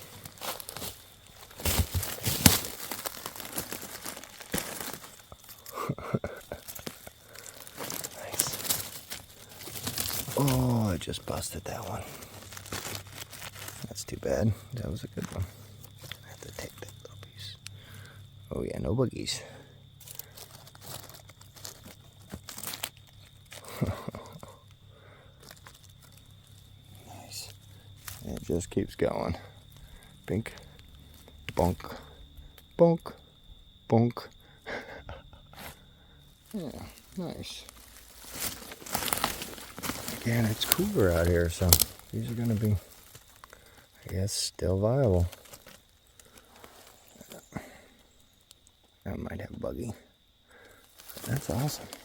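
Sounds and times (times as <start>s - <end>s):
leaf litter rustling and crackling: 0.0s - 16.9s, 20.0s - 24.6s, 25.4s - 28.7s, 36.3s - 44.2s, 44.8s - 47.8s, 50.8s - 52.0s.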